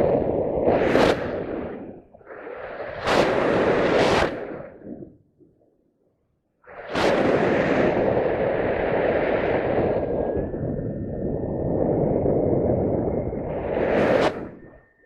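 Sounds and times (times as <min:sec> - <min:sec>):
wind rushing over microphone: 0:00.0 - 0:05.2, 0:06.7 - 0:15.0
faint steady high tone: 0:14.5 - 0:15.0.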